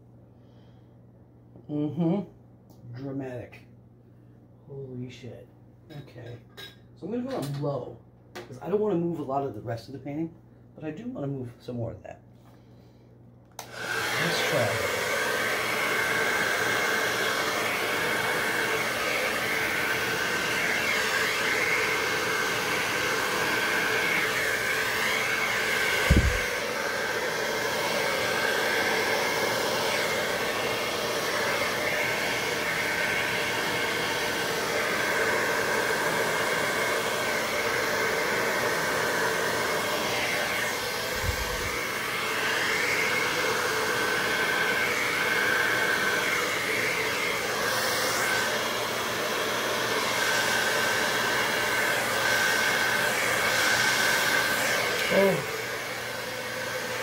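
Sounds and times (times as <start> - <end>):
hair dryer blowing: 13.5 - 57.0
low thump: 26.1 - 26.5.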